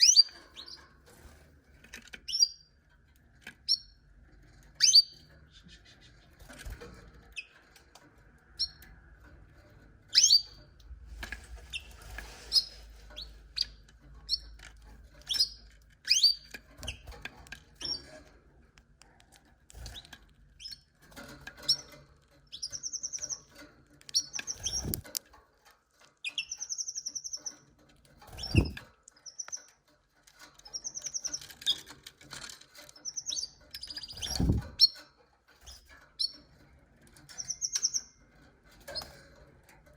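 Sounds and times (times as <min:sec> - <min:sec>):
canaries chirping and trilling: 0:00.0 - 0:39.9.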